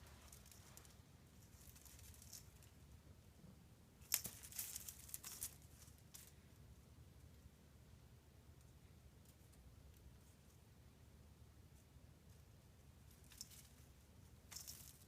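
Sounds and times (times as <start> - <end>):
crinkling and rustling: 0.0 - 2.8, 4.0 - 6.4, 13.0 - 15.0.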